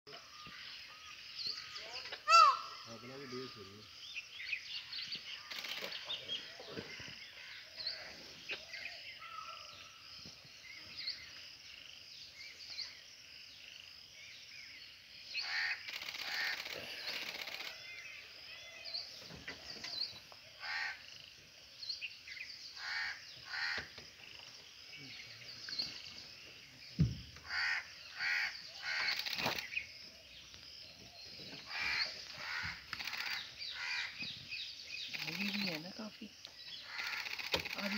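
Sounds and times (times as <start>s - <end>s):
birds calling: 0.1s - 37.9s
dull thump: 27.0s - 27.4s.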